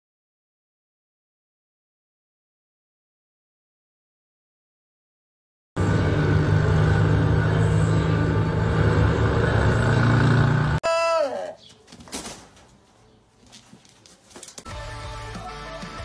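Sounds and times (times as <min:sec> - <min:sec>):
motorcycle engines droning: 0:05.8 - 0:10.8.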